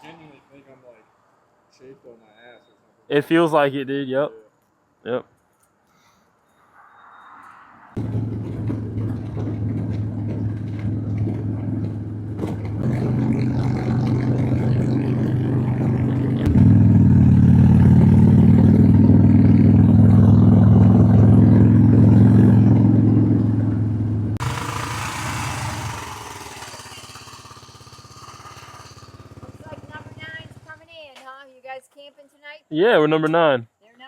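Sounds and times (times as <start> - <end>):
motorcycle engine revving: 8.0 - 30.8.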